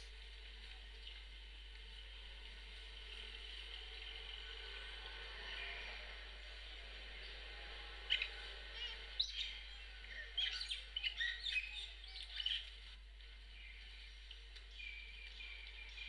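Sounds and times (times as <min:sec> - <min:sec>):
small birds chirping: 0:08.0 - 0:16.0.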